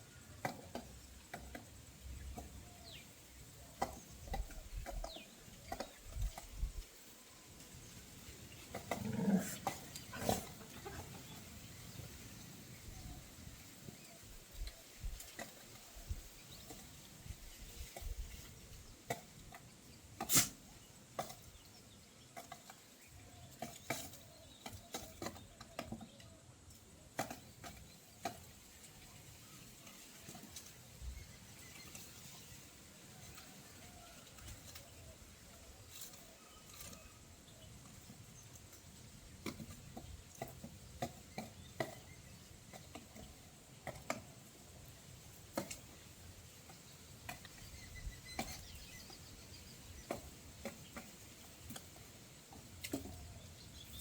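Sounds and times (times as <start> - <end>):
birds pecking taps and clicks: 0.3 - 3.0, 3.6 - 6.8, 14.5 - 29.1, 35.9 - 54.0.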